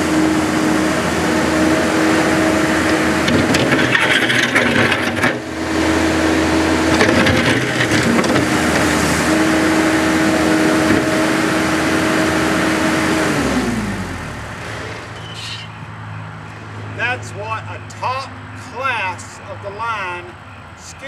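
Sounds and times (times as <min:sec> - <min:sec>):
diesel engine running at high throttle: 0:00.0 - 0:17.9
clanks and rattles: 0:02.8 - 0:05.5, 0:06.9 - 0:08.9.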